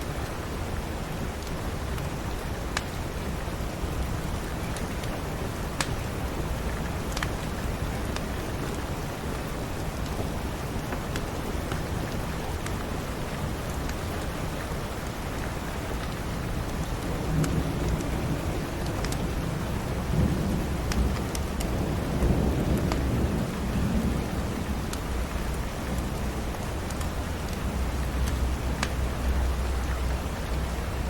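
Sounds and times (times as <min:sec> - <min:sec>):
steady rain: 0:00.0 - 0:31.0
wood fire crackling: 0:01.2 - 0:30.3
low rumble of thunder: 0:16.7 - 0:30.7.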